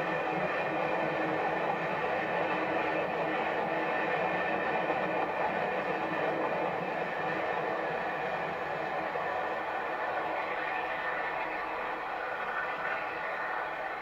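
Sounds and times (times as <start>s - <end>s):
faint steady tones: 0.0s - 14.0s
train rumbling along track: 0.0s - 14.0s.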